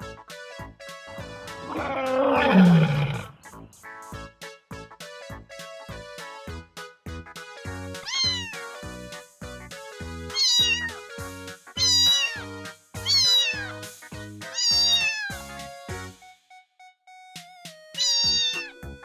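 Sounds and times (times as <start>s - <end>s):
background music with steady beat: 0.0s - 19.0s
cat meowing: 8.1s - 8.6s, 10.4s - 10.9s, 11.8s - 12.4s, 13.1s - 13.7s, 14.6s - 15.3s, 18.0s - 18.7s.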